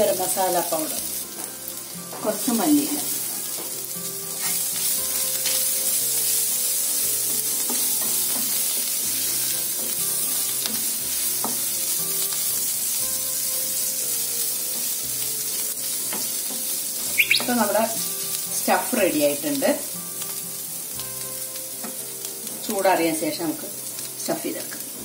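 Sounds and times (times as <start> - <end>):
stuffing sizzling in oil: 0.0 - 25.0.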